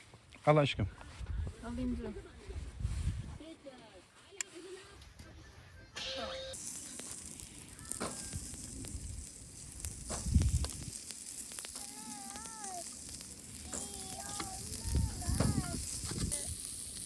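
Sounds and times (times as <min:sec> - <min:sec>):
food sizzling on a grill: 0:06.5 - 0:17.0.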